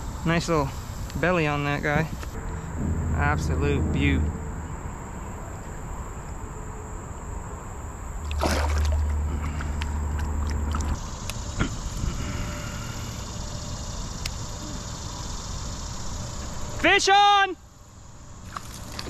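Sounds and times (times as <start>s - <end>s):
heavy low rumble: 2.0s - 6.3s
water splashing around boat: 8.2s - 11.0s.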